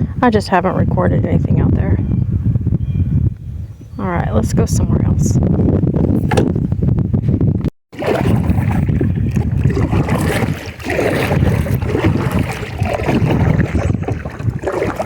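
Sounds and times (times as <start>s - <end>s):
wind buffeting microphone: 0.0s - 15.0s
paddle strokes in water: 7.9s - 15.0s.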